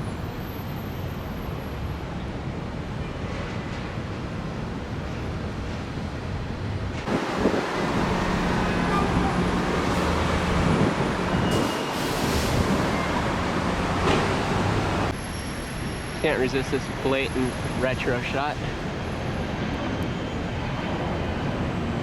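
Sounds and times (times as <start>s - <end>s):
road traffic noise: 0.0s - 22.0s
wind on microphone: 7.0s - 13.4s.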